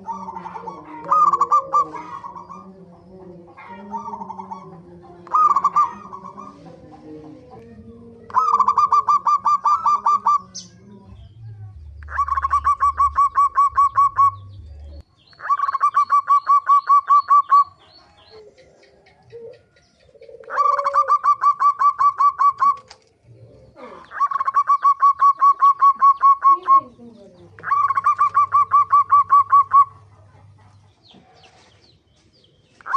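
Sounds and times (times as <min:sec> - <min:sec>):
dove staccato call: 0:00.0 - 0:06.8, 0:08.3 - 0:10.7, 0:12.0 - 0:14.6, 0:15.3 - 0:23.0, 0:23.9 - 0:31.4.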